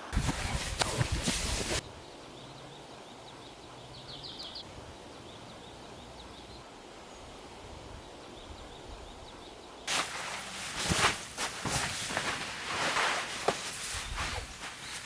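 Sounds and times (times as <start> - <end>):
forest background hush: 0.0 - 15.0
faint high bird chirps: 2.0 - 6.6.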